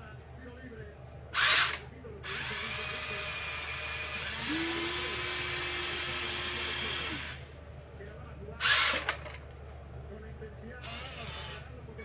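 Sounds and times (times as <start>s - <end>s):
toy excavator motors whining: 1.3s - 7.6s, 8.6s - 9.5s, 10.7s - 12.0s.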